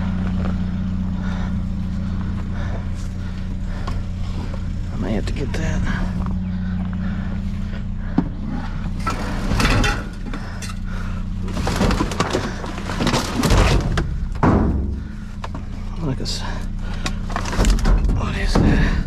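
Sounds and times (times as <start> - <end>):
steady low hum: 0.0 - 19.0
junk clattering in metal dumpster: 8.9 - 15.6, 17.1 - 19.0.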